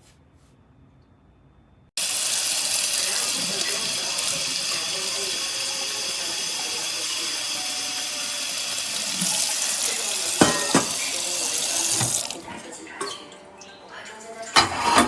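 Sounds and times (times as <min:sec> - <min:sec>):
water running from a tap: 0:02.0 - 0:13.1.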